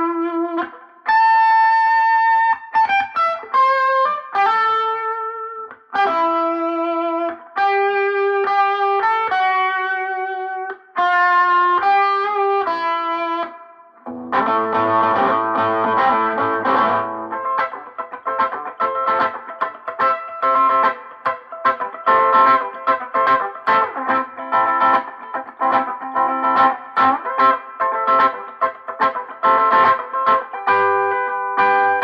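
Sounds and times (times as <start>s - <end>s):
overdriven electric guitar lead: 0.0s - 32.0s.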